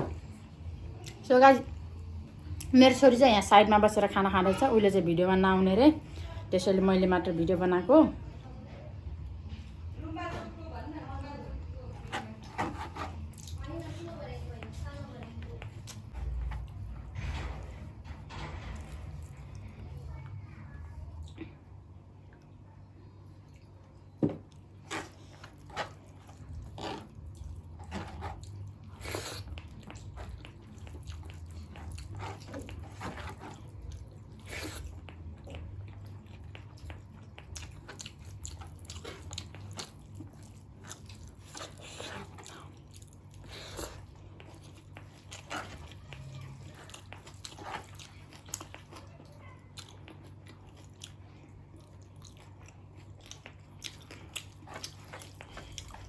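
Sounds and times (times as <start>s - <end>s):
person chewing and smacking: 12.0s - 13.7s, 14.6s - 16.9s, 23.4s - 56.0s.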